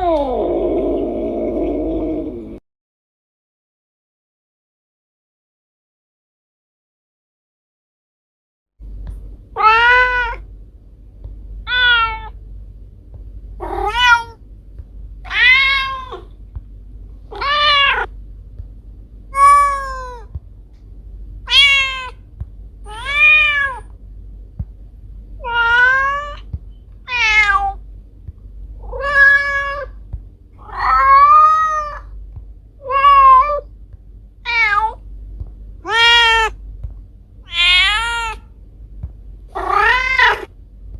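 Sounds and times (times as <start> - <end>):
faint steady low hum: 0.0 - 2.6, 8.8 - 40.9
cat meowing: 9.6 - 10.4, 11.6 - 12.4, 13.6 - 14.4, 15.3 - 16.3, 17.3 - 18.1, 19.4 - 20.3, 21.4 - 22.2, 22.9 - 23.9, 25.4 - 26.5, 27.1 - 27.8, 28.8 - 30.0, 30.6 - 32.1, 32.8 - 33.7, 34.4 - 35.0, 35.8 - 36.6, 37.4 - 38.5, 39.5 - 40.5.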